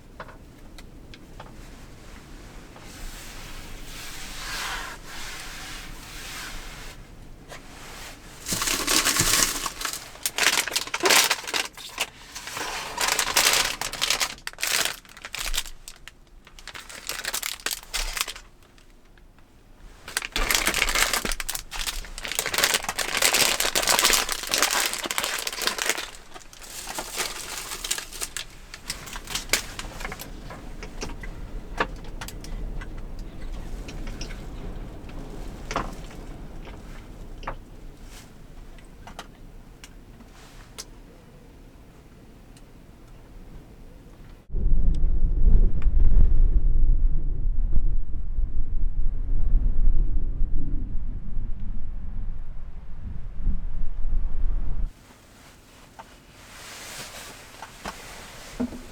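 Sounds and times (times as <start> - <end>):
material crinkling and rustling: 2.8 - 41.0, 54.9 - 58.9.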